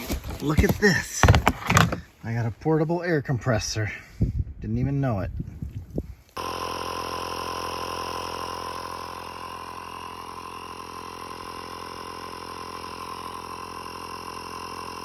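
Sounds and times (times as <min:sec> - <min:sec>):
air compressor running: 0:00.0 - 0:02.1, 0:06.4 - 0:15.0.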